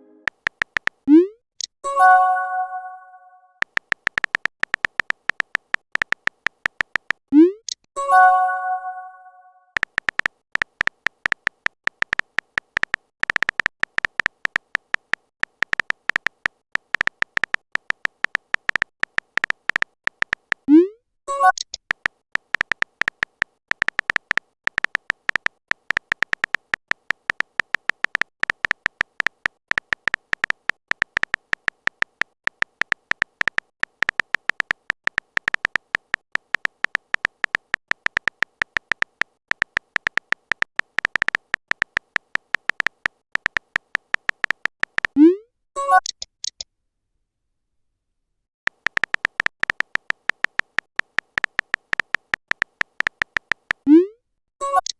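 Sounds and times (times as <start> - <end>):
short electronic typing beeps: 15.6 - 21.8, 22.5 - 46.6, 48.7 - 54.9.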